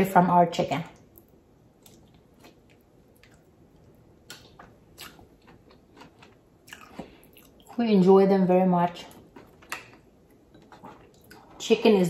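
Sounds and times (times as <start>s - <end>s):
wet chewing of food: 1.0s - 7.8s, 8.9s - 11.6s.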